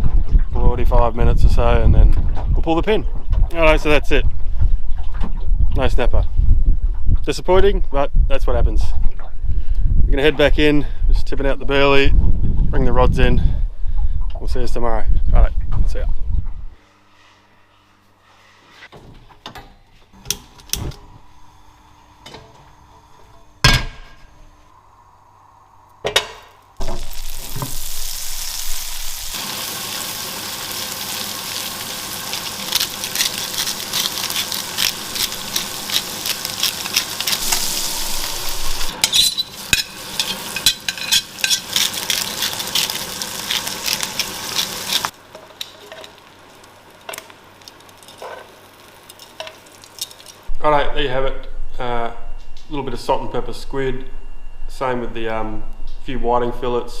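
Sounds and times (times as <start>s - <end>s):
food frying in hot oil: 26.8s - 50.5s
kitchen utensils clinking: 39.0s - 46.3s.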